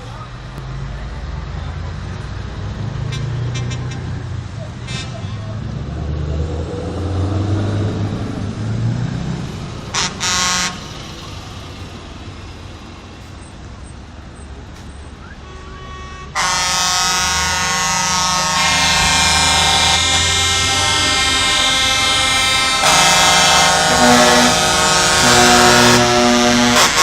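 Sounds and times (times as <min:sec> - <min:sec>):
truck engines rumbling: 0:00.0 - 0:27.0
truck air horn blasts: 0:03.0 - 0:04.2, 0:04.8 - 0:05.5, 0:09.9 - 0:11.2, 0:15.2 - 0:27.0
loud sustained multi-tone sound: 0:18.3 - 0:27.0.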